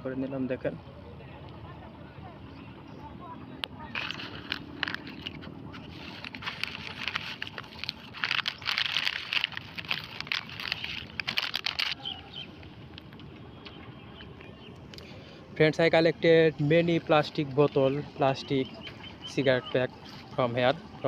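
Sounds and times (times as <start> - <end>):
plastic wrappers rustling and crackling: 3.9 - 13.1.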